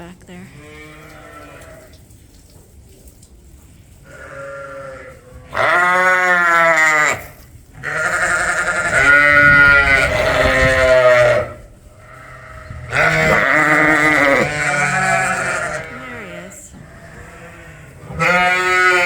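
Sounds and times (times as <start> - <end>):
sheep bleating loudly: 4.1 - 11.6, 12.2 - 19.0.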